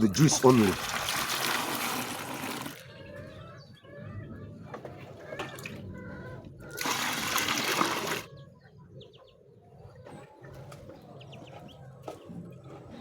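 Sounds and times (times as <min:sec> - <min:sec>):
liquid pouring with splash: 0:00.1 - 0:02.8, 0:06.8 - 0:08.3.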